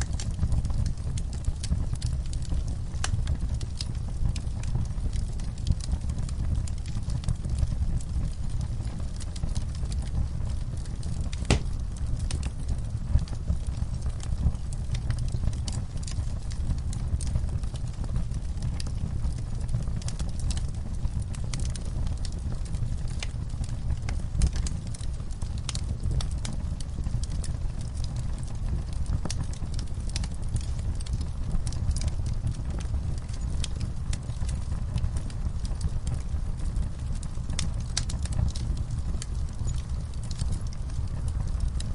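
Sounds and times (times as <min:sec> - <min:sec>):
wood fire crackling: 0:00.0 - 0:41.9
fire pop: 0:11.3 - 0:12.6.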